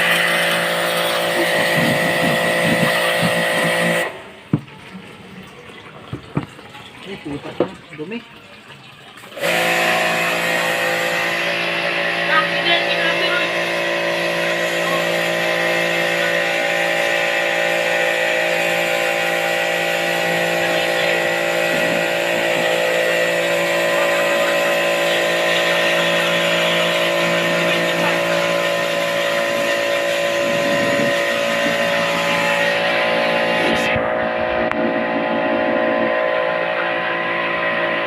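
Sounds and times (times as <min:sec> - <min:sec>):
motor humming steadily: 0:00.0 - 0:38.0.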